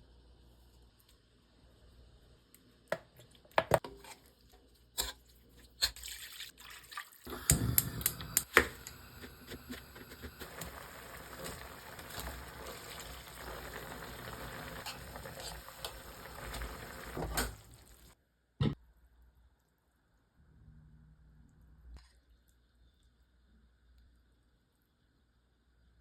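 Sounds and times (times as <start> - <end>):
liquid splashing into pot: 5.7 - 8.9, 10.4 - 18.2
pot hissing: 7.3 - 18.2.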